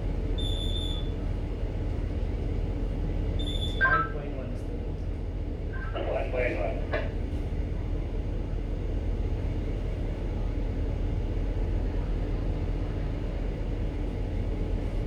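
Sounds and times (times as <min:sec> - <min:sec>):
ship engine drone: 0:02.9 - 0:08.7.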